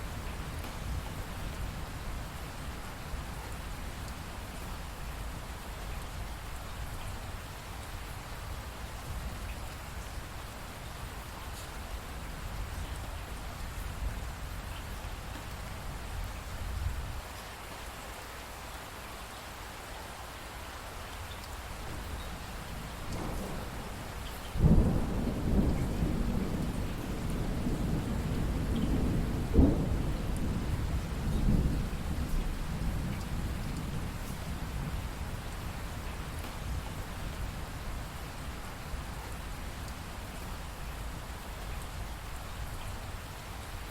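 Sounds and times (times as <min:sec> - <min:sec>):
steady rain falling: 0:00.0 - 0:43.9
rolling thunder: 0:21.9 - 0:36.0.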